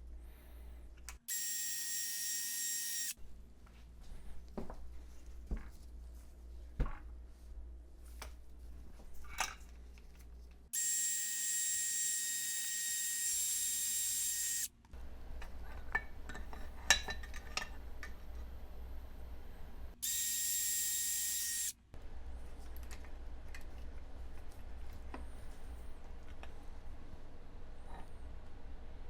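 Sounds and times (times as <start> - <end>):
power tool hissing whine: 1.3 - 3.2, 10.8 - 14.7, 20.0 - 21.7.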